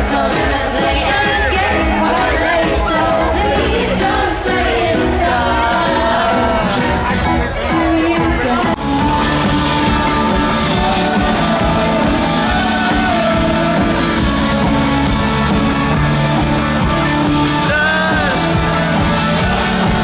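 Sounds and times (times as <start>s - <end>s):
live rock band with singing: 0.0s - 20.0s.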